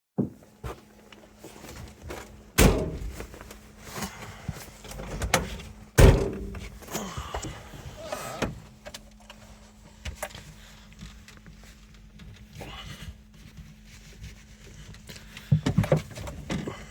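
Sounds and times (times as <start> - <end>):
car door shutting: 2.6 - 3.2, 5.2 - 6.7.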